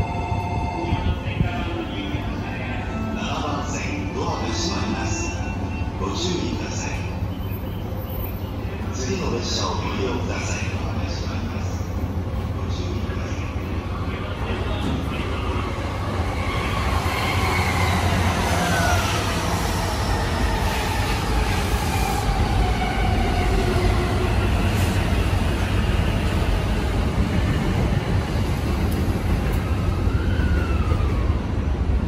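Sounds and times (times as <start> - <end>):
train wheels rumbling on rails: 12.0 - 32.0.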